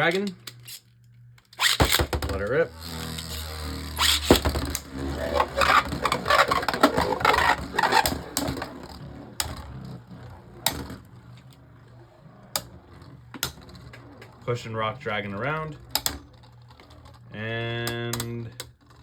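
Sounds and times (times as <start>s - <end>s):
clatter of hits and scraping: 1.6s - 11.6s.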